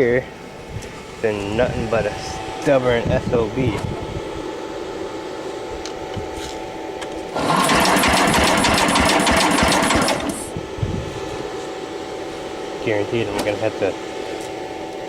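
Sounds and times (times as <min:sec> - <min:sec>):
starter cranking engine: 0:07.3 - 0:10.6.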